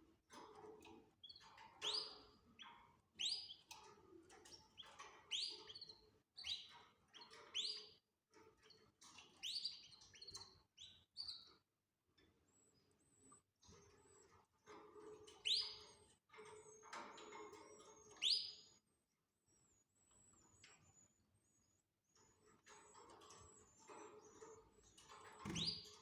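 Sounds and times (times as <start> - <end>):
canaries chirping: 1.2 - 3.8, 4.4 - 11.6, 13.8 - 18.8, 22.7 - 26.0.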